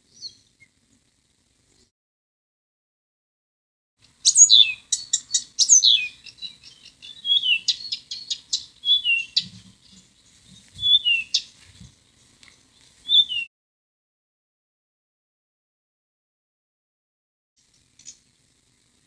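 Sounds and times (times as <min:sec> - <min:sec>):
birds chirping and whistling: 0:04.2 - 0:13.5.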